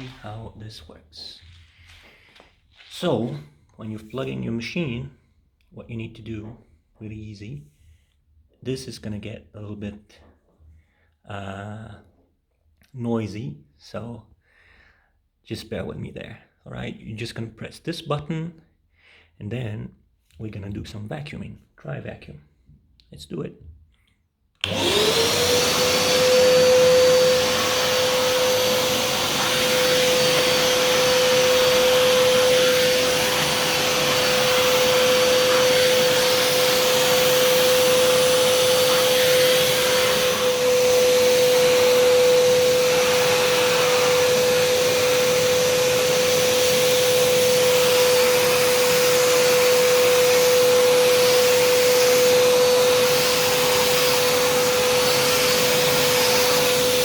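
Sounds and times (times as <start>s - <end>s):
vacuum cleaner motor whine: 0.0s - 0.4s, 24.6s - 57.0s.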